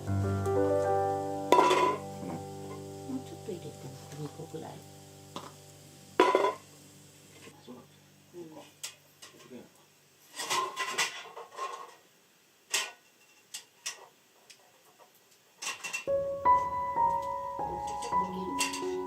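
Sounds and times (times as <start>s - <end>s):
gentle piano music: 0.0s - 8.6s, 16.0s - 19.0s
kitchenware clinking: 1.5s - 2.1s, 6.2s - 6.7s, 15.6s - 16.7s, 17.7s - 19.0s.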